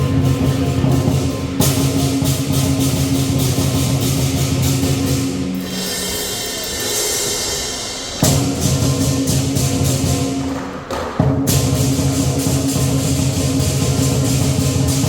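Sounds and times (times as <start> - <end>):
gong: 0.0 - 10.6
cymbals ringing: 0.0 - 15.0
drum beating: 0.0 - 15.0.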